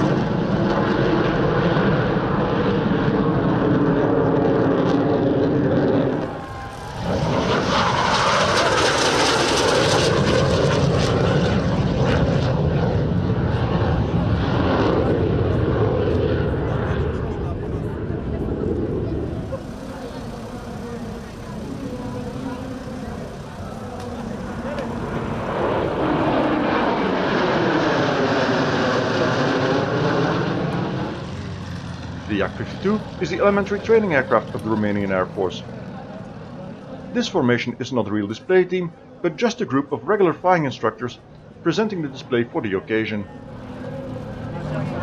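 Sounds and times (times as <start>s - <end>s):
aircraft engine drone: 0.0s - 45.0s.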